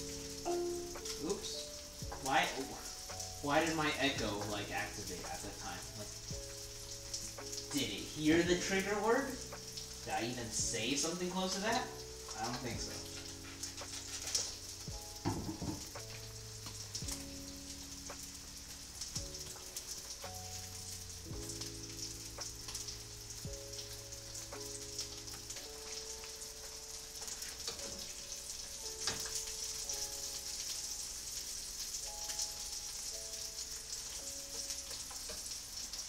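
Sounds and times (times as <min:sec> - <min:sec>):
fish sizzling in frying pan: 0:00.0 - 0:36.0
soft background music: 0:00.0 - 0:36.0.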